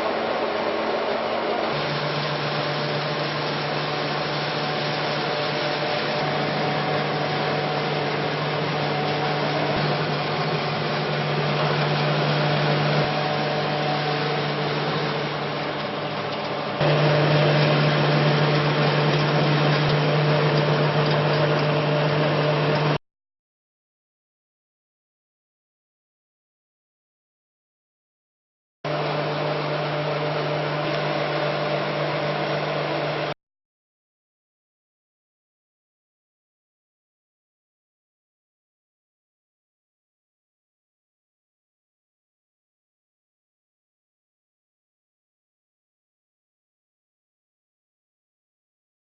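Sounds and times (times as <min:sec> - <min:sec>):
noisy grinding rush: 0:00.0 - 0:23.0
pellet mill machine hum: 0:00.0 - 0:23.0, 0:28.9 - 0:33.4.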